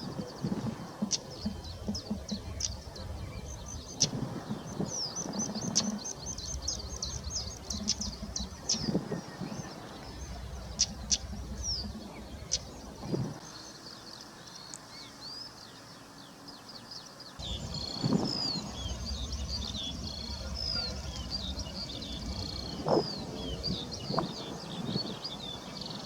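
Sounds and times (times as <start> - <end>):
birds chirping: 0.0 - 26.0
sharp bird clicks: 5.1 - 9.1, 10.0 - 13.2
low steady rumble: 6.0 - 13.4, 17.4 - 25.8.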